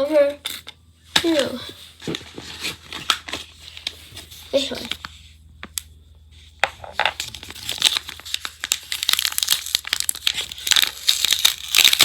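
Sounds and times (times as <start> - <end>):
packaging crinkling and tearing: 6.9 - 12.0.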